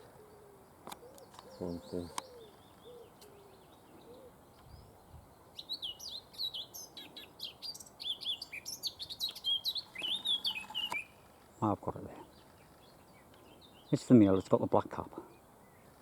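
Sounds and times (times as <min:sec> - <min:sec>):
bird warbling song: 0:00.0 - 0:16.0.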